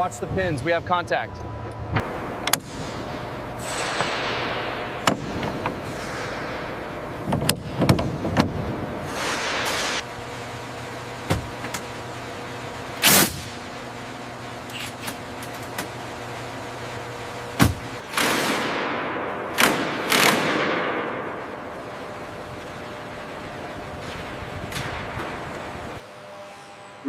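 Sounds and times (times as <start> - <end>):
low machinery hum: 0.0 - 27.0
hissing air bursts: 9.0 - 10.0.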